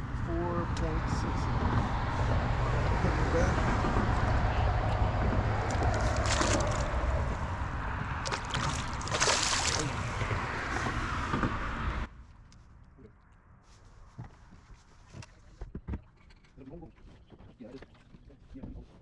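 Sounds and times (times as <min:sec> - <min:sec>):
wind rumbling on microphone: 0:00.0 - 0:12.2
water sloshing around kayak: 0:05.0 - 0:07.4, 0:08.0 - 0:10.7
water splashes: 0:05.4 - 0:11.0.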